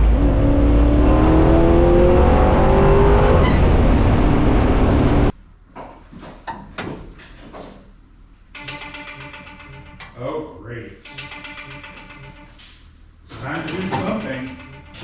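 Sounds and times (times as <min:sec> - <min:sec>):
car engine accelerating hard: 0:00.0 - 0:05.3.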